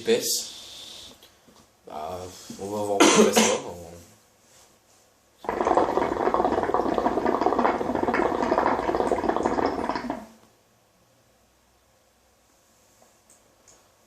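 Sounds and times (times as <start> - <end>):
hookah water bubbling: 5.4 - 10.5.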